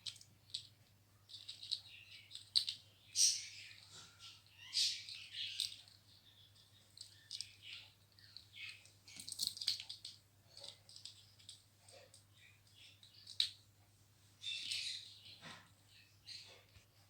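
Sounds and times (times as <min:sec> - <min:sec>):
parrot toy clicking and rattling: 0:00.0 - 0:03.8, 0:05.1 - 0:13.6.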